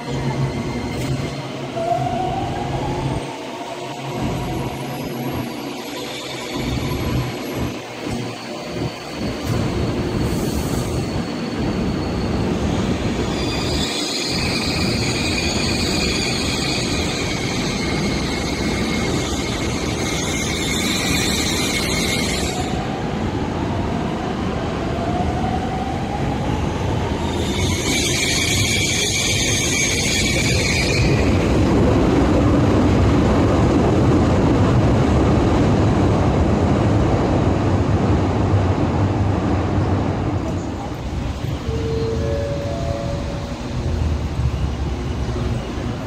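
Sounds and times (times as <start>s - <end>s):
train rumble pulling in: 0.0s - 46.0s
high-pitched wheel squeal: 4.9s - 22.8s, 27.2s - 31.6s.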